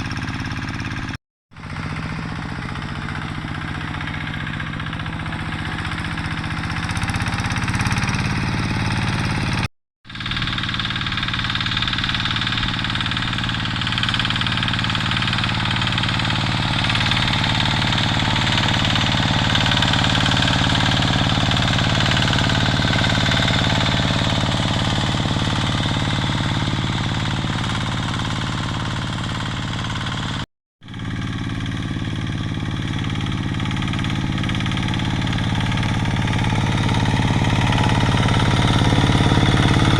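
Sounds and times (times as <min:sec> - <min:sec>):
diesel hand tractor engine clattering: 0:10.2 - 0:30.4, 0:31.0 - 0:39.9.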